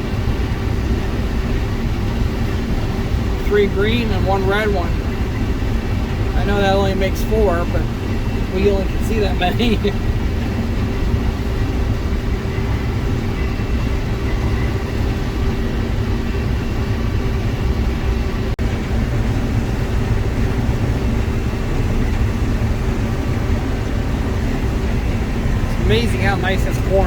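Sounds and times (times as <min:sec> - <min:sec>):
combine harvester drone: 0:00.0 - 0:27.0.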